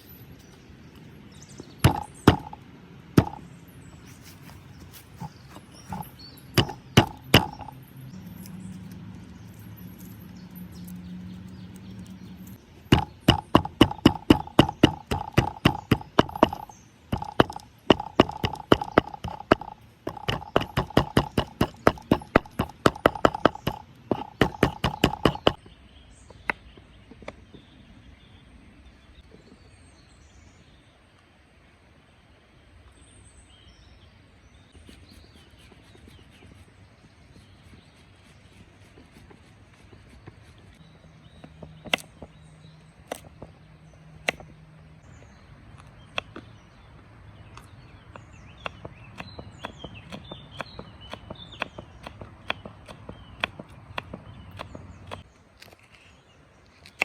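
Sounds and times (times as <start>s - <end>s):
bird chirps: 0.0s - 2.6s, 3.2s - 30.8s, 33.1s - 57.0s
faint outdoor background: 0.0s - 57.0s
rapid even knocking: 1.8s - 2.6s, 3.2s - 3.4s, 5.2s - 7.8s, 12.9s - 25.6s.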